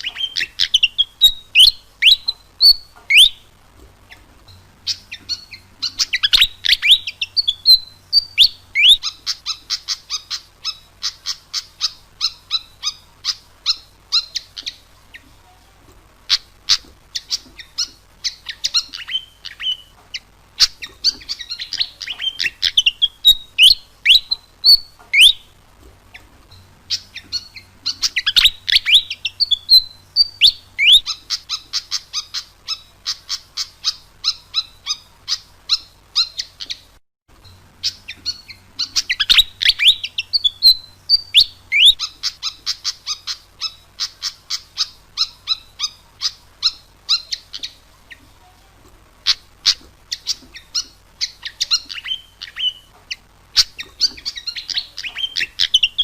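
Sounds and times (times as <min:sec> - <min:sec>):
bird singing high chirps: 0:00.0 - 0:03.5, 0:04.1 - 0:15.3, 0:16.3 - 0:48.2, 0:49.2 - 0:56.0.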